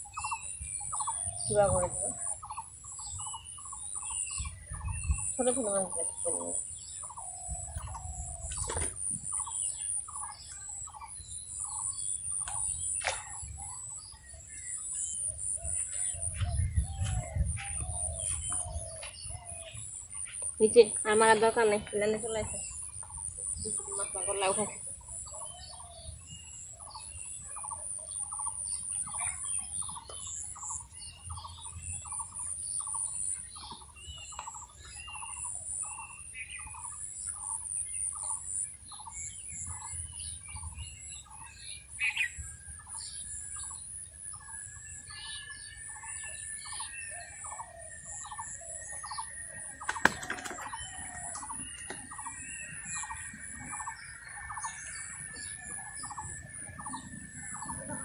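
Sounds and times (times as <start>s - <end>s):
bird calling: 45.3s - 58.0s.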